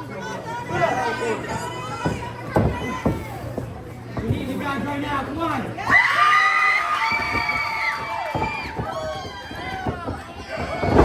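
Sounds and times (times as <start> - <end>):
crowd shouting and cheering: 5.5 - 11.0.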